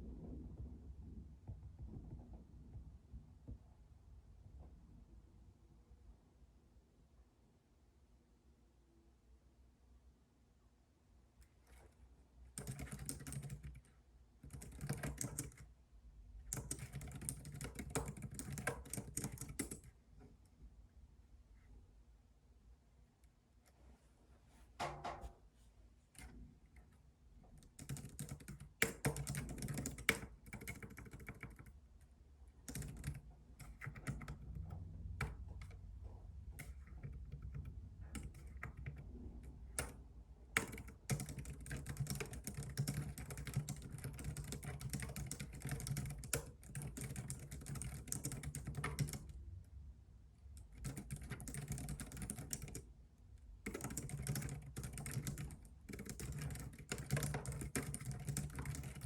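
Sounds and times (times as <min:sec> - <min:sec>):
computer keyboard typing: 0:12.5 - 0:15.7, 0:16.5 - 0:20.0, 0:27.6 - 0:31.8, 0:32.6 - 0:35.8, 0:36.5 - 0:49.4, 0:50.6 - 0:52.9, 0:53.6 - 0:59.0.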